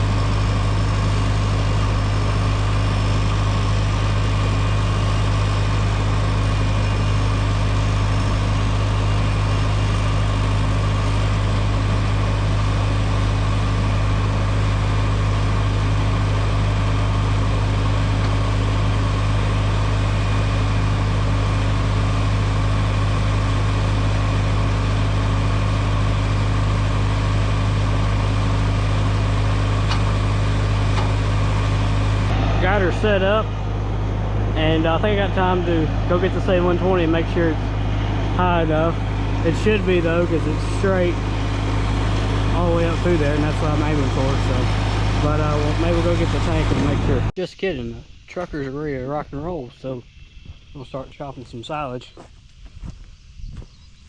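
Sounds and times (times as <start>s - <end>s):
tractor engine running: 0.0s - 47.4s.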